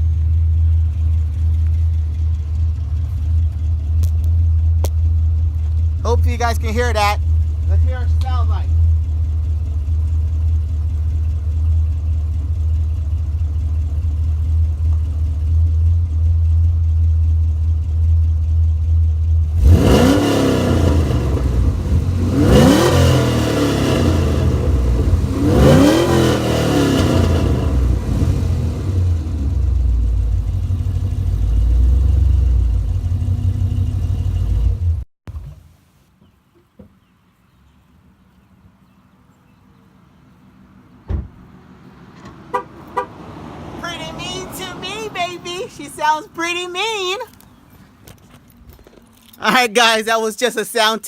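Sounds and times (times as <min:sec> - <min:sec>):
car engine idling and revving: 0:00.0 - 0:35.7, 0:40.0 - 0:49.7.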